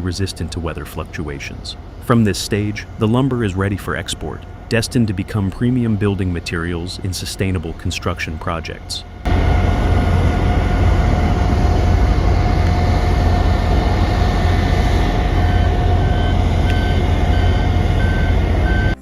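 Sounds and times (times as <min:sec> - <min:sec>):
diesel engine rumbling: 0:00.0 - 0:19.0
back-up alarm beeping: 0:15.1 - 0:19.0.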